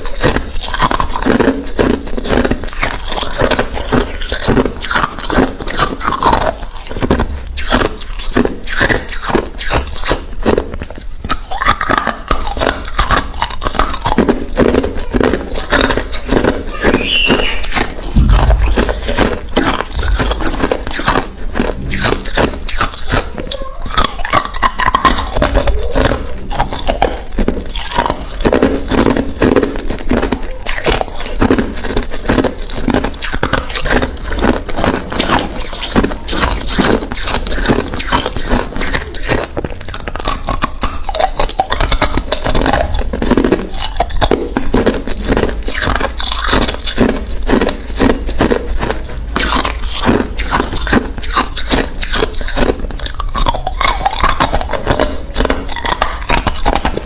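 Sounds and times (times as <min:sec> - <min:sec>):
ice cubes being chewed: 0:00.0 - 0:57.0.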